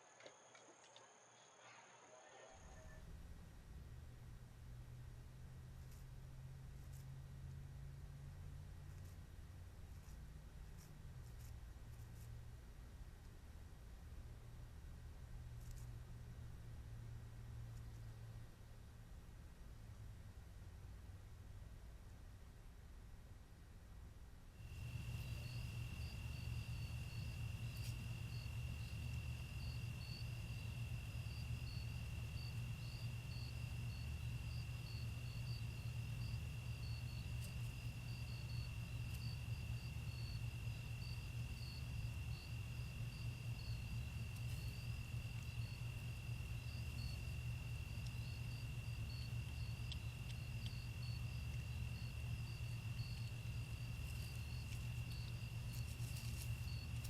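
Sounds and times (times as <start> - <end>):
constant low hum: 2.6 - 57.0
cricket trill: 24.6 - 57.0
insect rapid chirps: 24.6 - 57.0.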